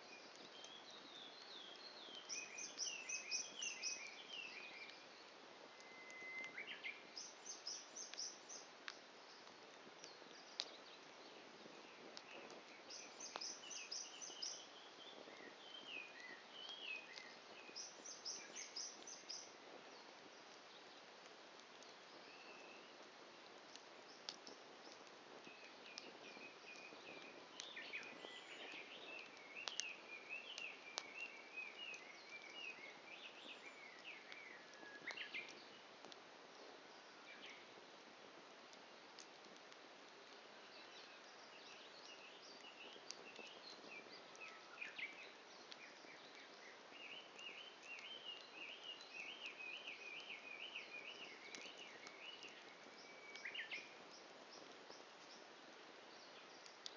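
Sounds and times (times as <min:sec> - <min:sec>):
wood fire crackling: 0:00.0 - 0:56.9
burning wood popping: 0:00.2 - 0:56.9
birds chirping: 0:06.0 - 0:21.0, 0:40.4 - 0:55.5.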